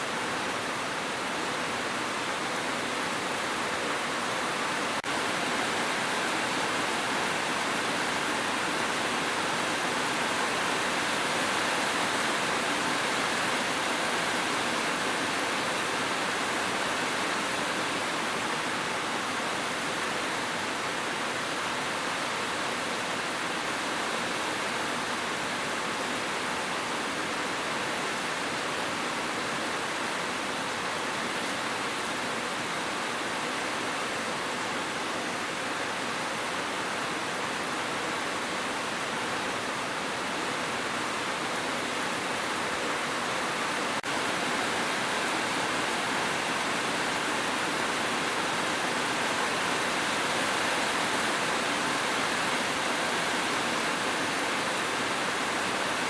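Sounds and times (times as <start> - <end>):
dense rain falling: 0.0 - 56.0.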